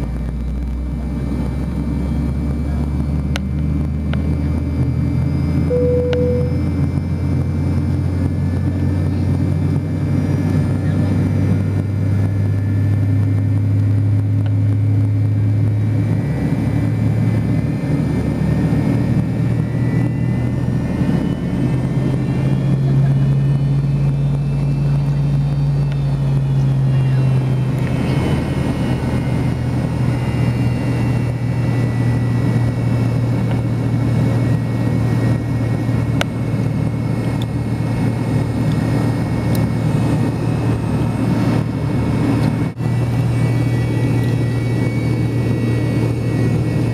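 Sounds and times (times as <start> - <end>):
faint whine: 0.0 - 11.2
jet engines droning: 0.0 - 46.9.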